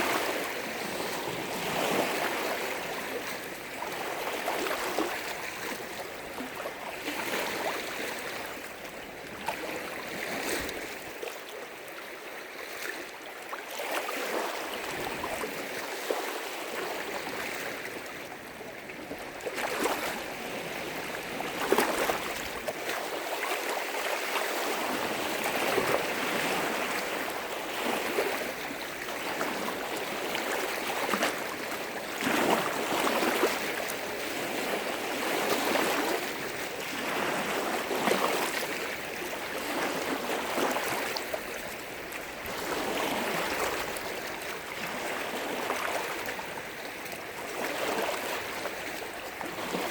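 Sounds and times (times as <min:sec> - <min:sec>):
waves lapping on shore: 0:00.0 - 0:49.9.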